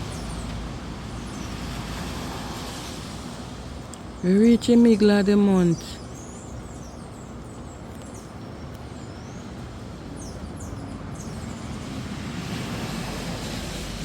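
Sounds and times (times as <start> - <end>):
distant rushing noise: 11.0 - 14.0.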